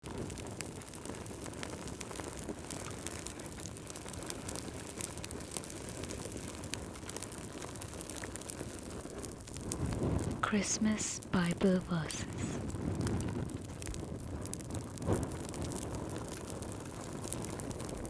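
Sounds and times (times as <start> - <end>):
fire popping and snapping: 0.0 - 11.0, 12.6 - 18.0
flames rushing: 12.6 - 18.0.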